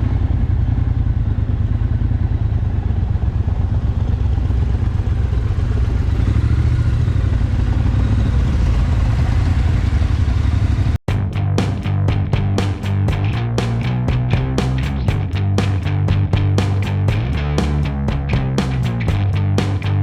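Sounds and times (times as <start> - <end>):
motorcycle engine rumbling: 11.1 - 20.0.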